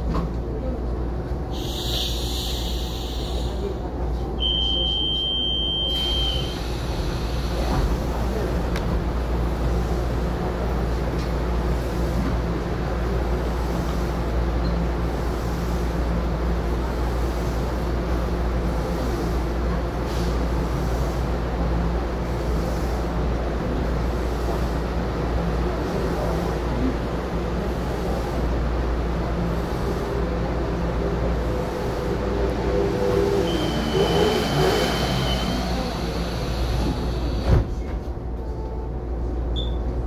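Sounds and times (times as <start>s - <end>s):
train mechanical rumble: 0.0s - 40.0s
high steady beep: 1.6s - 3.6s, 4.4s - 6.5s.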